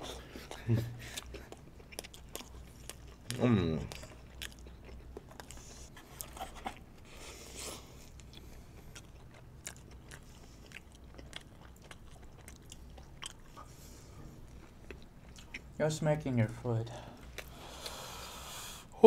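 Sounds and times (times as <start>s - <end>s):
crunching and chewing: 0.0s - 15.8s, 17.1s - 18.2s
steady low hum: 0.0s - 19.0s.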